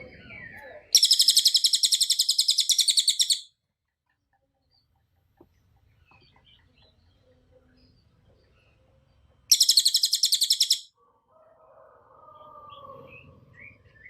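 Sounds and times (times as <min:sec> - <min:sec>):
songbird rapid trill: 0:00.9 - 0:03.5, 0:09.5 - 0:10.9.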